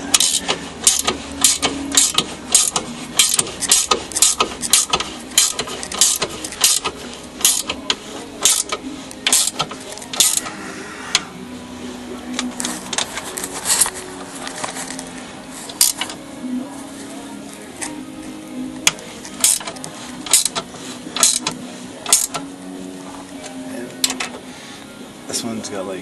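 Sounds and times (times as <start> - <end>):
ratchet wrench clicking: 0.1 - 10.5, 15.7 - 16.2, 18.8 - 22.4, 24.0 - 24.4.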